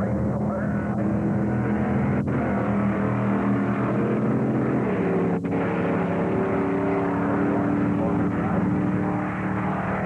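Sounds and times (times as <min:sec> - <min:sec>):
drag racing car engine at full throttle: 0:00.0 - 0:10.0.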